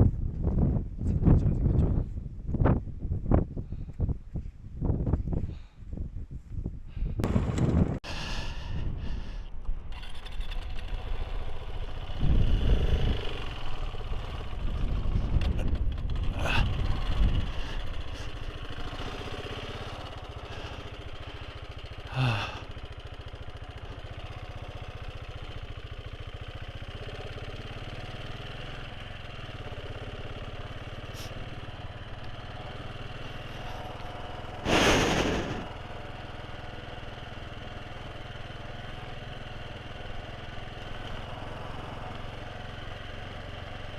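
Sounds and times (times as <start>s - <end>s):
motorcycle engine running: 7.2s - 43.9s
short loud burst of noise: 34.6s - 35.8s.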